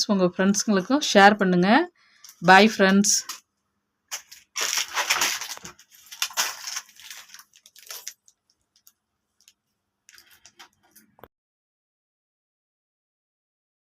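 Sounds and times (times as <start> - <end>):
rustling and handling noises: 4.1 - 11.3.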